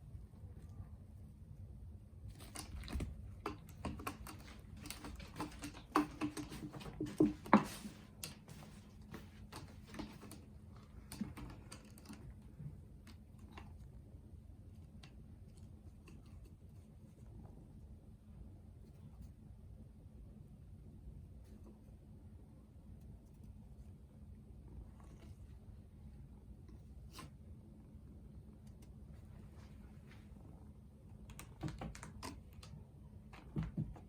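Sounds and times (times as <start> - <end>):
cat playing clicks and taps: 2.3 - 14.0, 30.4 - 34.0.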